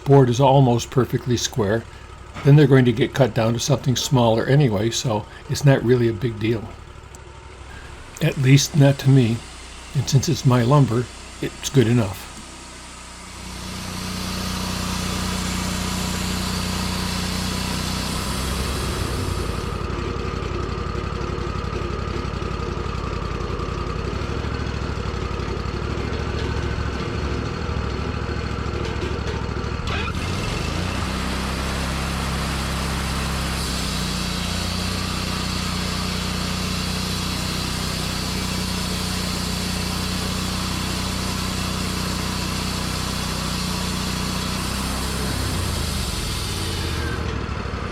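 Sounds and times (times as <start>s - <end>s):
saw cutting wood: 0.0s - 7.0s, 7.7s - 19.9s, 29.9s - 47.4s
sawmill engine running: 0.0s - 47.9s.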